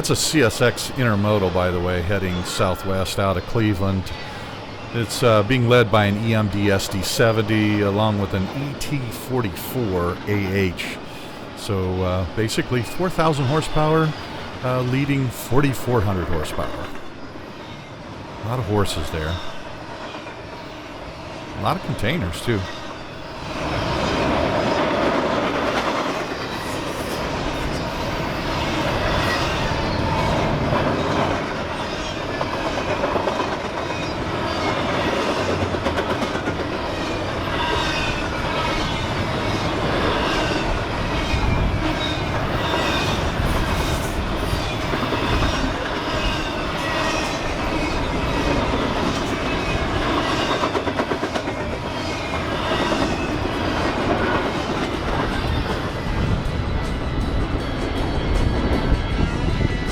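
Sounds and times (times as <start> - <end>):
train cars rolling rumble: 0.0 - 59.9
wheels clacking over rail joints: 23.5 - 58.9.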